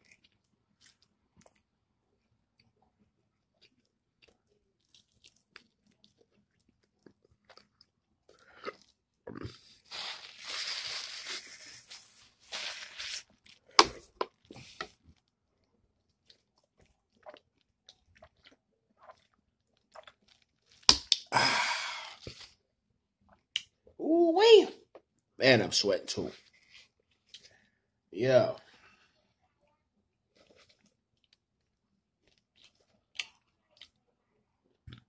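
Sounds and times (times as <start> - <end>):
chewing and crunching: 0.0 - 21.3, 26.4 - 27.8, 30.3 - 34.1.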